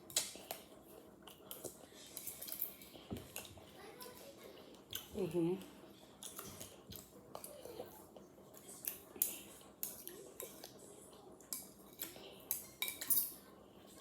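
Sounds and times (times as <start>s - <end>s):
spoon clinking against bowl: 12.5s - 13.4s.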